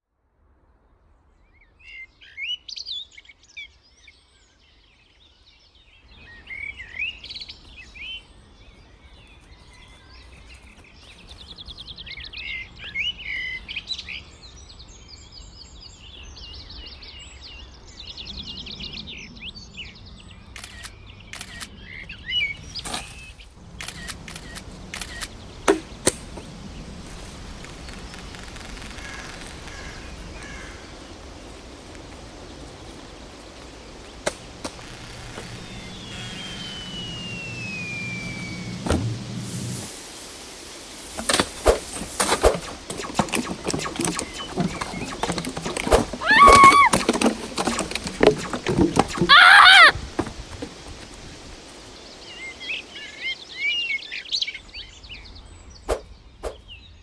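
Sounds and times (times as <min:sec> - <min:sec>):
outdoor background noise: 0:00.0 - 0:57.0
songbirds chirping and warbling: 0:00.9 - 0:57.0
sharp clicks: 0:20.6 - 0:21.7, 0:23.8 - 0:30.6, 0:34.1 - 0:39.9, 0:41.1 - 0:50.8
faint low hum: 0:23.6 - 0:39.9
sharp knocks: 0:25.7 - 0:26.5.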